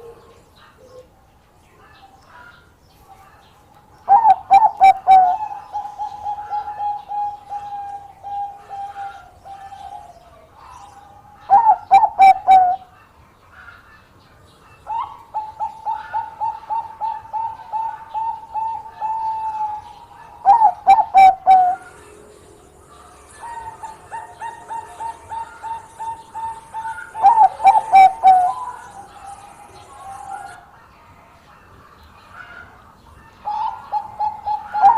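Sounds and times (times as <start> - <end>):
dove cooing: 0.0 - 1.2, 4.1 - 13.0, 14.8 - 30.7, 33.4 - 34.9.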